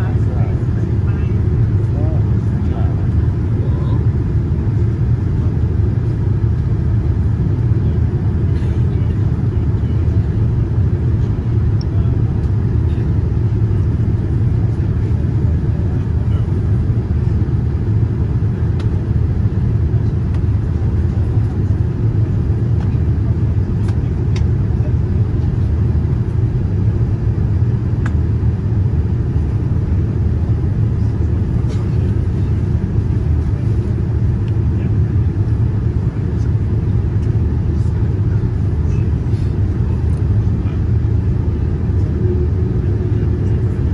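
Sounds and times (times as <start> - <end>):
airliner cabin rumble: 0.0 - 43.9.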